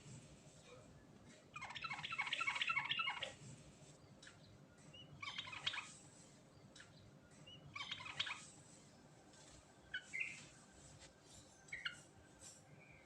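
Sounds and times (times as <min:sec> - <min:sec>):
bulbul singing: 0:04.1 - 0:06.0, 0:06.6 - 0:08.5, 0:11.6 - 0:12.1.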